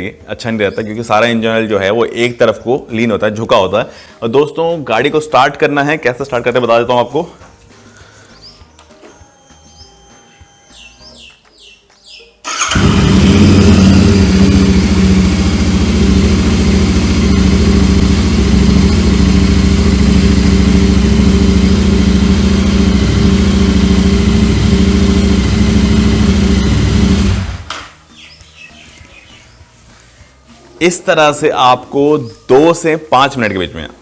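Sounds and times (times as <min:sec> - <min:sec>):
electric starter cranking: 0:12.5 - 0:18.7
motorcycle engine idling: 0:12.5 - 0:27.7.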